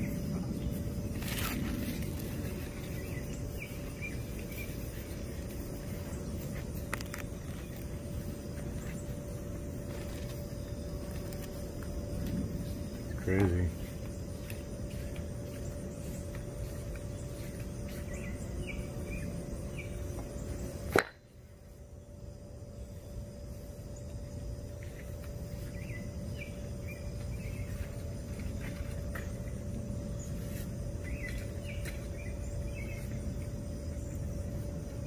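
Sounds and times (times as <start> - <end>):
small bird chirping: 0.0 - 9.2, 12.7 - 20.9, 24.8 - 34.3
faint steady hum: 0.0 - 35.0
steady low rumble: 0.0 - 35.0.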